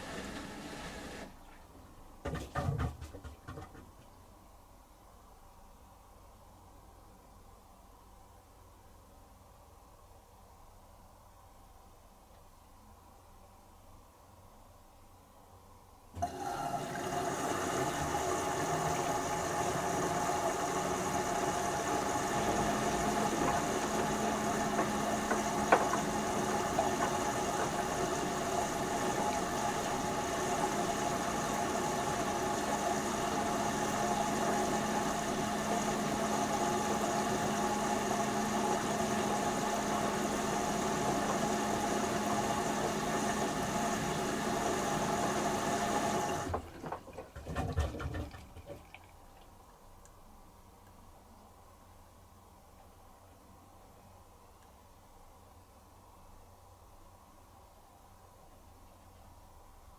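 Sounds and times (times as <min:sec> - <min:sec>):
washing machine whirring hum: 0:00.0 - 0:07.3, 0:15.9 - 0:52.6.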